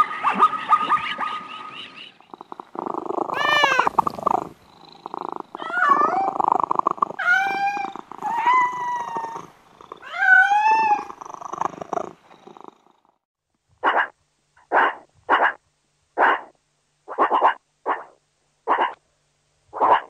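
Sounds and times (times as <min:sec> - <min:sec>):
cat purring: 0:02.2 - 0:13.2
cat mewing: 0:02.4 - 0:11.2.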